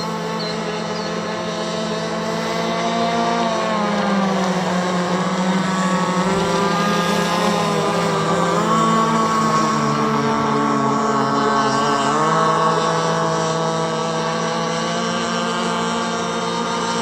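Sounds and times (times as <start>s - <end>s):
model boat two-stroke engine: 0.0s - 17.0s.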